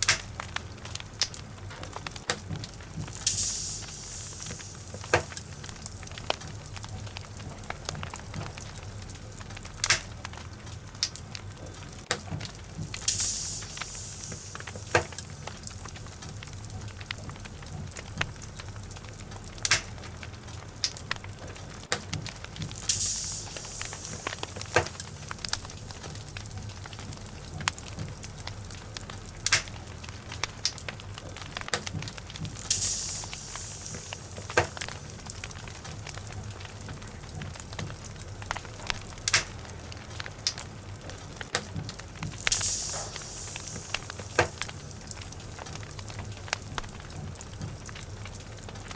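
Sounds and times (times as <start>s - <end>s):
fire crackling and popping: 0.0s - 48.9s
low steady hum: 0.0s - 48.9s
brief hiss: 3.2s - 6.0s, 13.0s - 15.8s, 22.8s - 25.7s, 32.6s - 35.3s, 42.4s - 44.9s.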